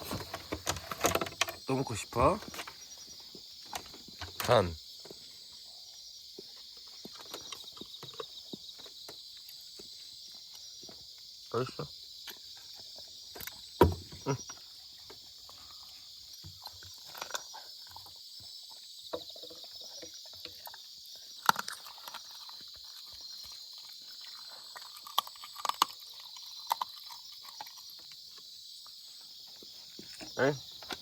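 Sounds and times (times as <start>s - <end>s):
small clicks and knocks: 0.0s - 1.6s
high insect chirring: 0.0s - 31.0s
dog chewing and smacking: 21.4s - 28.4s.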